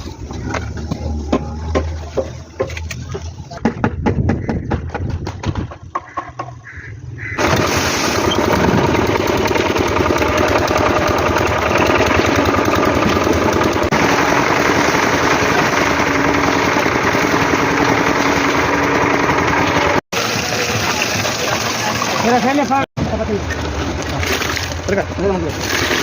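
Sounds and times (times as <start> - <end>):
loud machine running: 7.4 - 22.9.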